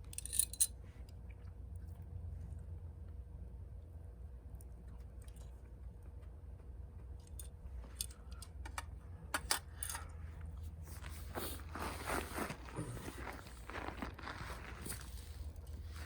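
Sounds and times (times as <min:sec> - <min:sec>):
steady low rumble: 0:00.0 - 0:16.0
rustling: 0:10.9 - 0:16.0.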